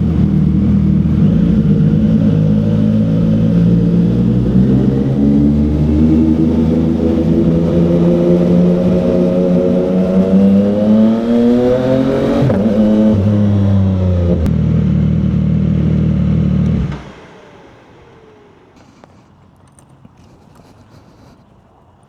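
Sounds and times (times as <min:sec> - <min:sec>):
motorcycle engine revving: 0:00.0 - 0:21.1
faint clicks: 0:18.7 - 0:22.0.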